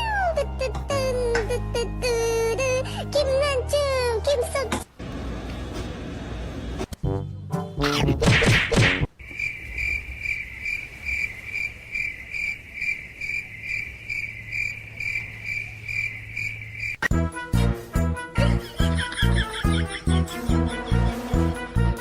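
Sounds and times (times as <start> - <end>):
music: 0.0 - 9.1, 17.1 - 22.0
insect chirping: 9.2 - 17.1.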